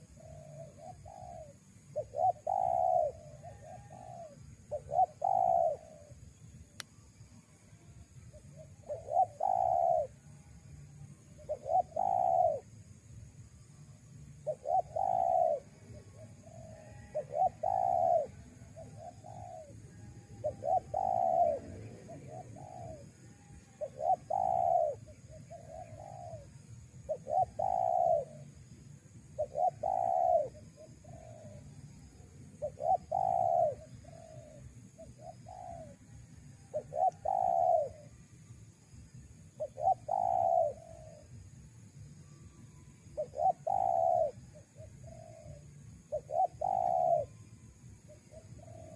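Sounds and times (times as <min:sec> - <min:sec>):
dove cooing: 0:00.0 - 0:06.1, 0:08.4 - 0:10.2, 0:11.4 - 0:12.7, 0:14.4 - 0:28.5, 0:29.4 - 0:31.7, 0:32.6 - 0:38.1, 0:39.6 - 0:41.3, 0:43.2 - 0:47.4, 0:48.1 - 0:48.9.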